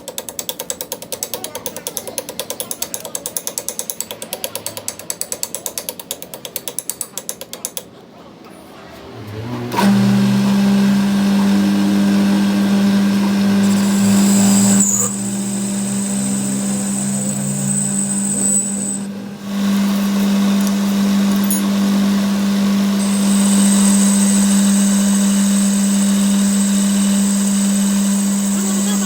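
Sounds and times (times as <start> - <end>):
machine hum: 7.9 - 29.0.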